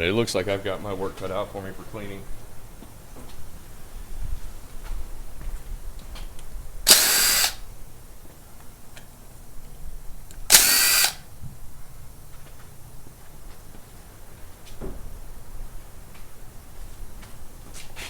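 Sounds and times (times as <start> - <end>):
power tool bursts: 6.8 - 7.7, 10.3 - 11.3.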